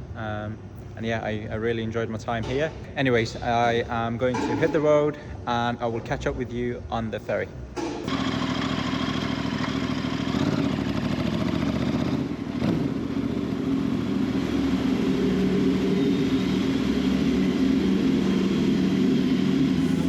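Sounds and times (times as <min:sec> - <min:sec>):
motorcycle engine setting off: 0:07.8 - 0:20.0.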